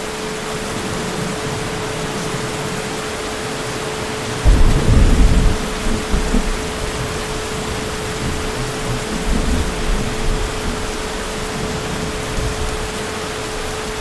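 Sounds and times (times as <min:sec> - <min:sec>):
heavy rain: 0:00.0 - 0:14.0
thunder rumble: 0:00.3 - 0:14.0.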